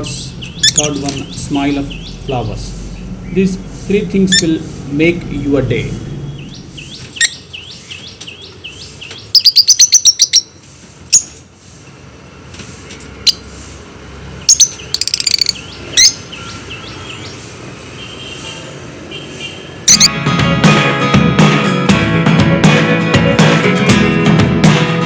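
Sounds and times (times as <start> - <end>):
lovebirds chirping: 0.0 - 10.4.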